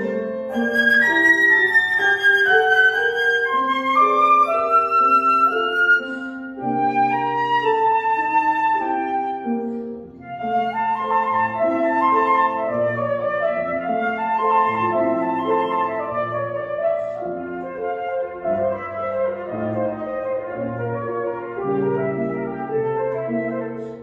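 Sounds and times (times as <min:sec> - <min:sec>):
flute melody: 0:00.0 - 0:24.0
grand piano accompaniment: 0:00.0 - 0:24.0.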